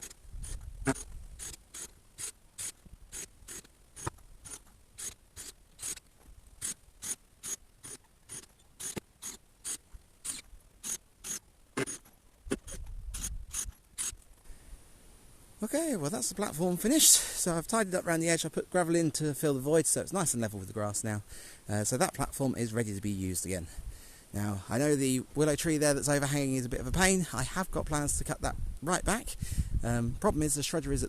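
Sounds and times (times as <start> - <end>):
regular mechanical clicking: 0.0 - 14.5.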